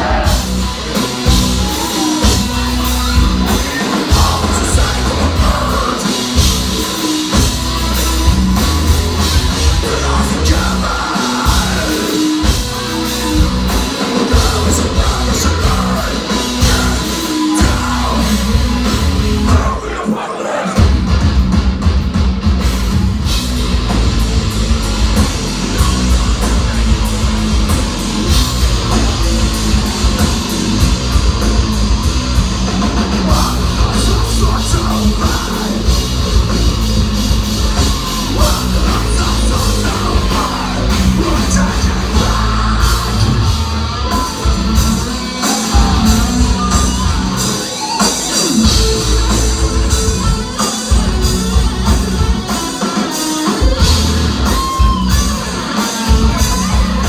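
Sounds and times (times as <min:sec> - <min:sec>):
heavy metal band playing live: 0:00.0 - 0:57.0.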